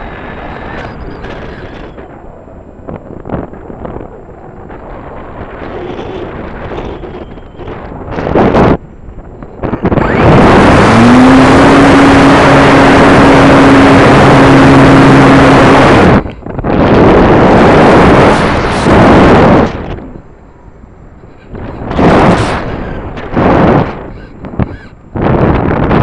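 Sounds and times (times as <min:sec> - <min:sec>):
wind rushing over microphone: 0:00.0 - 0:26.0
electric motor humming: 0:09.7 - 0:16.2.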